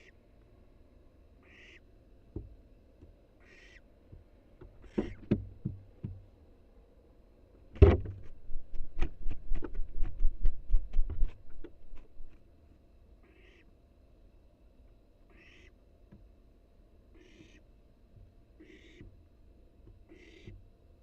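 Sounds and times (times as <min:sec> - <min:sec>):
owl hissing call: 0:01.4 - 0:01.8, 0:03.4 - 0:03.8, 0:13.2 - 0:13.6, 0:15.3 - 0:15.7, 0:17.2 - 0:17.6, 0:18.6 - 0:19.0, 0:20.1 - 0:20.5
thump in nest box: 0:07.8 - 0:08.4
owl chick wings flapping: 0:08.2 - 0:12.4.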